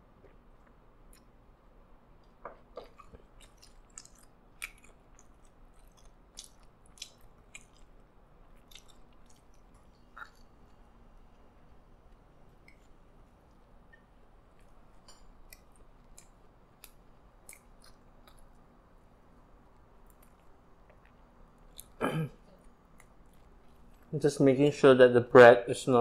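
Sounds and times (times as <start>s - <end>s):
person chewing wet smacks: 0.2s - 1.5s, 2.1s - 19.0s, 19.6s - 24.1s.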